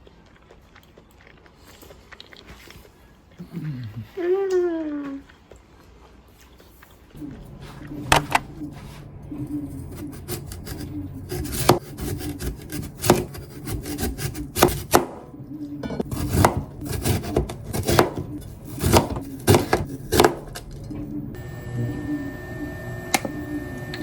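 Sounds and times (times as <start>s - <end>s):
knife chopping on wooden board: 9.9s - 20.6s.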